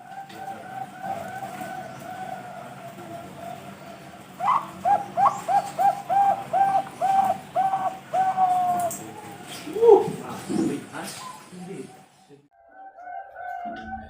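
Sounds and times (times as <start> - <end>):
dove cooing: 0.0 - 12.1, 12.7 - 14.0
short evenly spaced coos: 0.0 - 14.0
loud rising bird call: 4.3 - 10.3.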